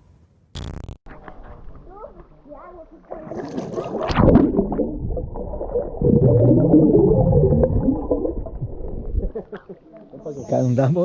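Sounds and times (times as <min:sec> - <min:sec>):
underwater gurgling and bubbling: 0:03.0 - 0:09.5.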